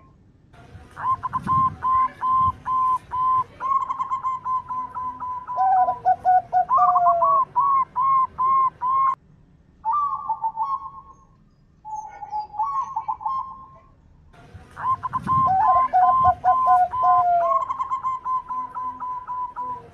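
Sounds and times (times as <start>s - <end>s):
doves cooing: 1.0s - 9.2s, 14.8s - 19.9s.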